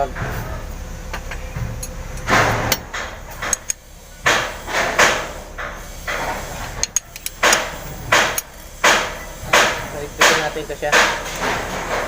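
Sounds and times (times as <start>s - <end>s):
metal tool clicks and clinks: 6.8s - 7.5s.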